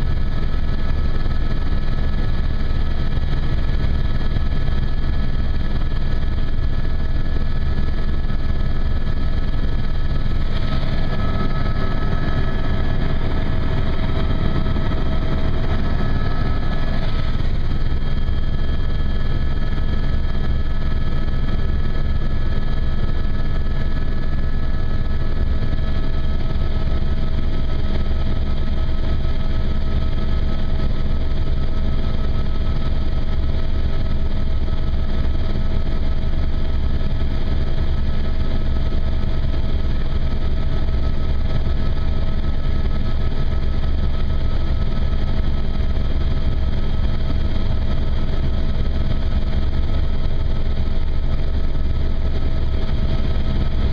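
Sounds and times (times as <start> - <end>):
helicopter engine and rotor drone: 0.0 - 53.9
high whine: 6.4 - 26.1.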